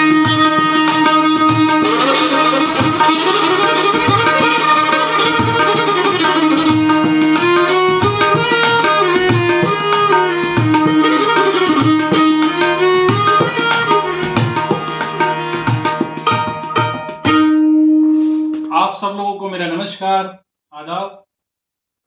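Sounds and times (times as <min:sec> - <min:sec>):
tabla strokes: 0:00.0 - 0:17.6
melody instrument sliding notes: 0:00.0 - 0:19.0.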